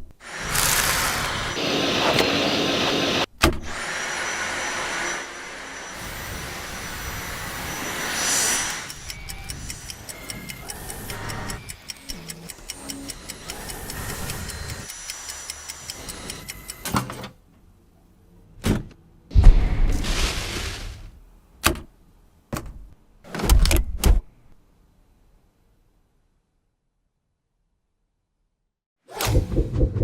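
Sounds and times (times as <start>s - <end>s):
stick vacuum cleaner running: 0.3s - 9.1s
sharp ticks: 8.8s - 16.8s.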